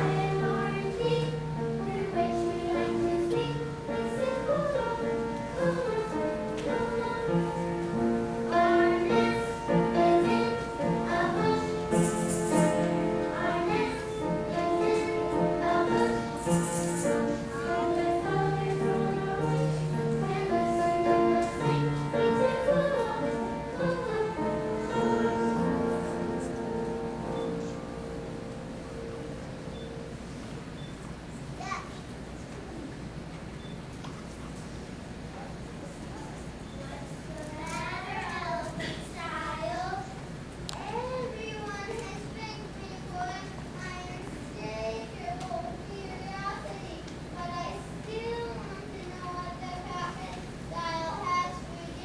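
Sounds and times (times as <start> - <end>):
children singing: 0.0 - 26.8
instrumental accompaniment: 0.0 - 30.4.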